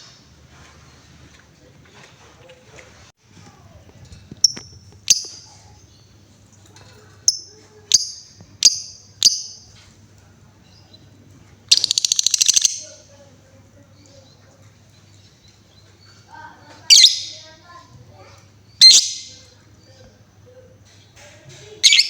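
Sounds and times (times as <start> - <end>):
lovebird chirping: 4.4 - 6.2, 7.3 - 9.7, 11.7 - 13.0, 15.1 - 17.5, 18.7 - 20.0
lovebird trilling chatter: 11.7 - 13.0, 16.8 - 17.6, 18.7 - 19.5.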